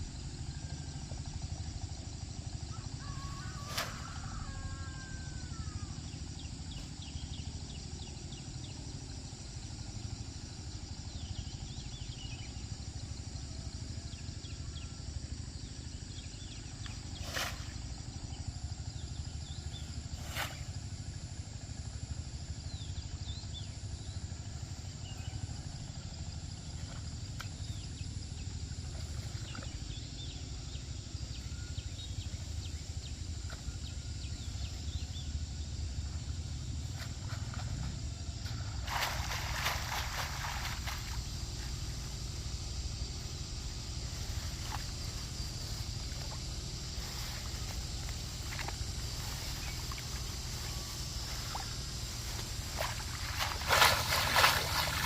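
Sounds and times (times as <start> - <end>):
small birds chirping: 26.6 - 55.0.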